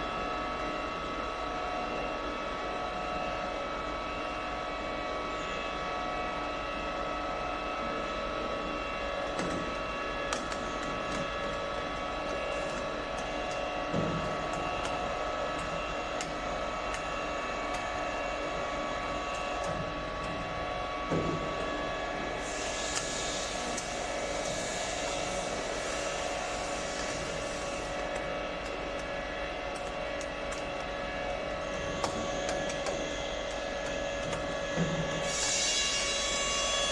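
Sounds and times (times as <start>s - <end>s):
bending machine whine: 0.0s - 36.9s
hiss: 22.4s - 28.0s, 34.8s - 36.9s.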